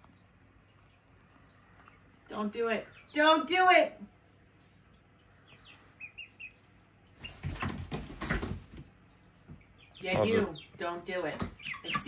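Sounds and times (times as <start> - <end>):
chicks peeping: 4.6 - 12.0
wings flapping: 7.2 - 8.9.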